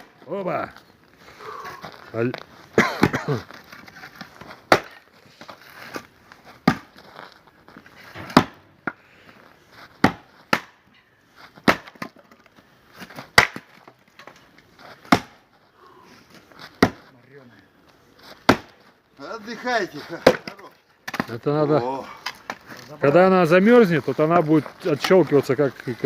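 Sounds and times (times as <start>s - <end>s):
axe splitting firewood: 2.8s - 6.0s, 8.1s - 9.0s, 9.9s - 10.8s, 11.6s - 12.4s, 13.0s - 15.5s, 16.7s - 17.1s, 18.3s - 18.9s, 20.1s - 21.4s.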